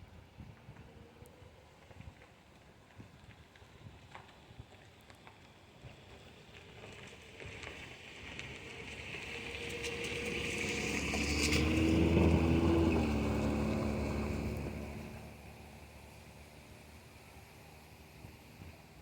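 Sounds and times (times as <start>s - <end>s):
jet airliner passing by: 7.5s - 17.5s.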